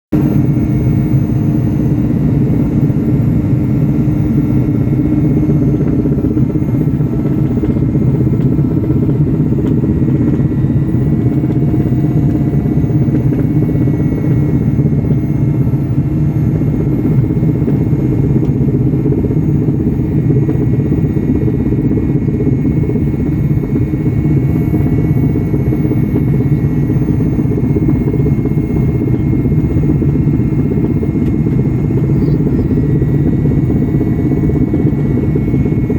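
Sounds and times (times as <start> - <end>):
helicopter engine and rotor drone: 0.1 - 35.9.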